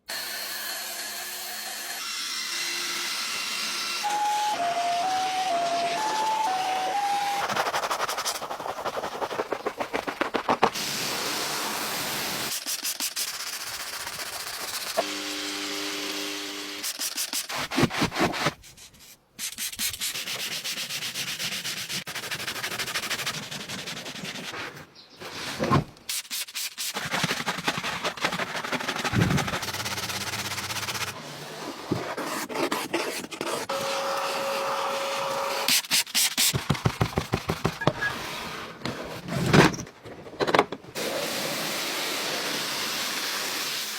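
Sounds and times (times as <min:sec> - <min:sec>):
brushes scrubbing car surface: 0:05.6 - 0:11.5, 0:16.8 - 0:24.8, 0:26.1 - 0:33.8.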